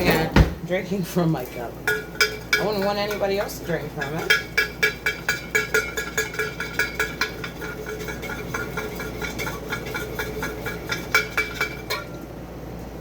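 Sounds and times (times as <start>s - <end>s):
spoon clinking in a cup: 1.8s - 12.2s.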